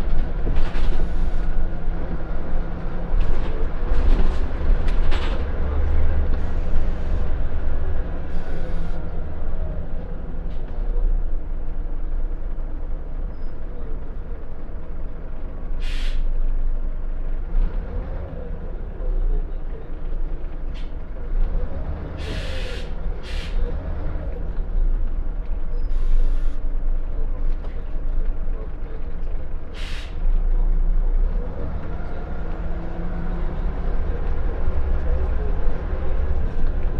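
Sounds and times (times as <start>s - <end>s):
bus engine rumbling: 0.0s - 36.9s
air brake hiss: 15.8s - 16.3s, 22.2s - 23.7s, 25.9s - 26.6s, 29.8s - 30.2s.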